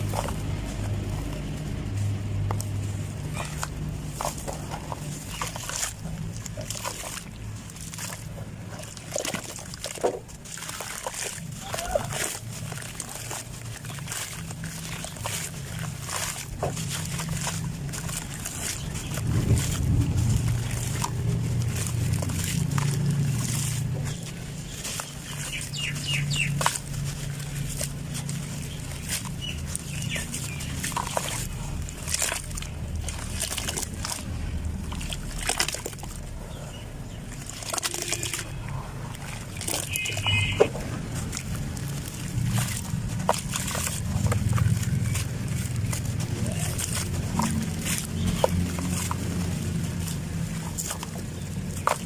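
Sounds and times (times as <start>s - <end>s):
dry material crunching: 0.0s - 52.0s
low steady hum: 0.0s - 52.0s.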